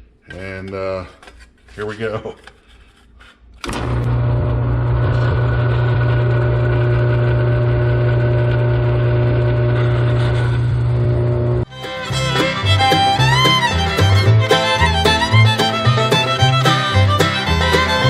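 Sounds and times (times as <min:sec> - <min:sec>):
drill press motor humming: 0:03.6 - 0:11.7.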